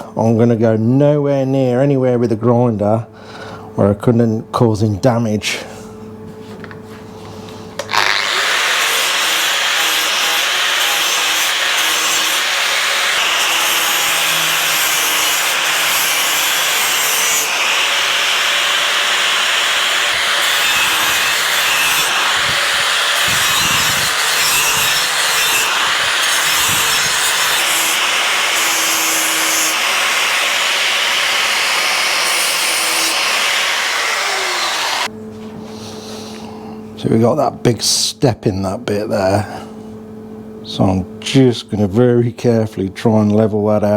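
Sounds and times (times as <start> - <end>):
power grinder scraping metal: 7.8 - 35.1.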